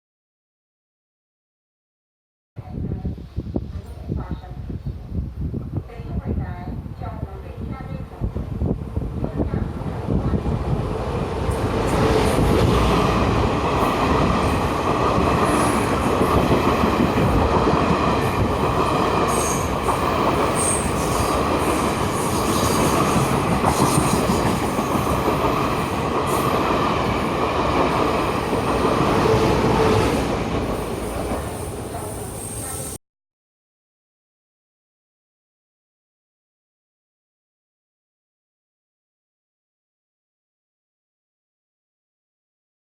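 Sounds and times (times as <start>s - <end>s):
train wheels rumbling on rail: 7.3s - 33.0s.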